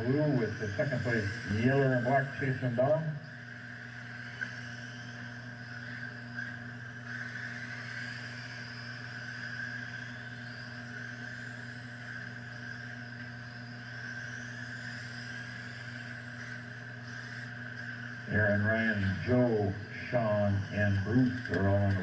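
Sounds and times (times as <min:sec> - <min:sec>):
electric motors whining: 0:00.0 - 0:22.0
low hum: 0:00.0 - 0:22.0.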